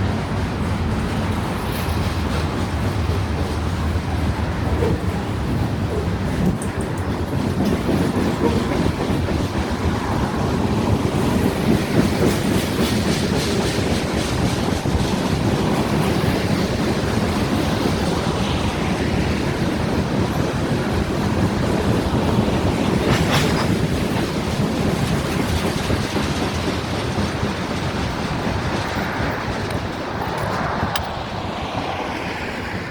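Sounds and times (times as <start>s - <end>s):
train wheels clacking on rail joints: 0.0s - 31.4s
freight train rumble: 0.0s - 32.9s.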